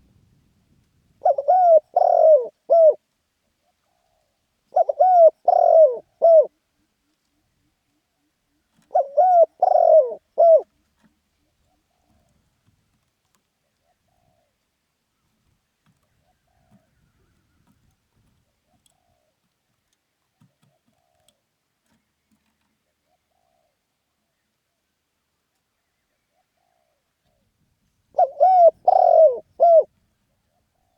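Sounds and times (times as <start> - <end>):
dove cooing: 1.2 - 3.0, 3.6 - 12.4, 13.6 - 14.6, 16.0 - 17.8, 18.4 - 19.4, 20.4 - 21.4, 22.8 - 23.9, 26.2 - 27.4, 28.1 - 30.9.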